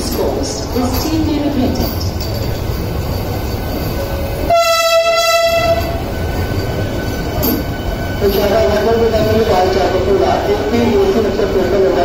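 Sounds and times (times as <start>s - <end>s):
train rolling with low rumble: 0.0s - 12.0s
train horn blast: 4.4s - 6.0s.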